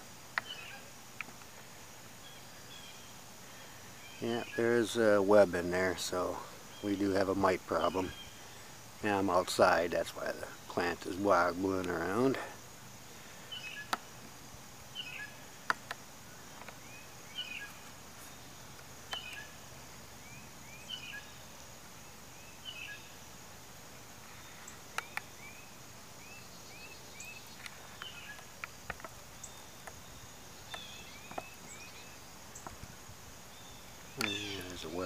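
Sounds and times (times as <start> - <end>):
bird chirping: 0.0 - 1.0, 2.2 - 12.4, 13.1 - 14.2, 14.9 - 23.2, 24.2 - 35.0
steady low background noise: 0.0 - 35.0
sharp clicks: 34.2 - 34.8.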